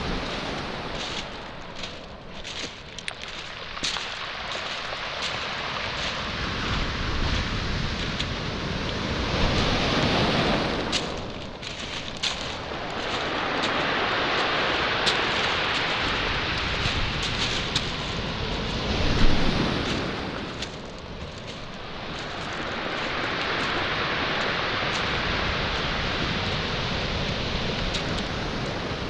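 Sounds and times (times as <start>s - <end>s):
waves breaking on pebble shore: 0.0s - 29.0s
stones clicking: 1.8s - 4.2s.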